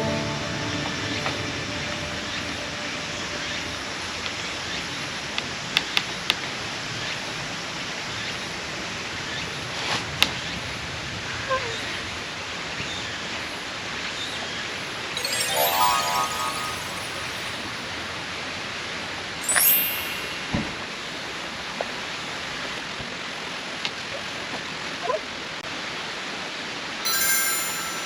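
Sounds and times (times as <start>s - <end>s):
outdoor background hiss: 15.2s - 18.2s, 27.0s - 28.0s.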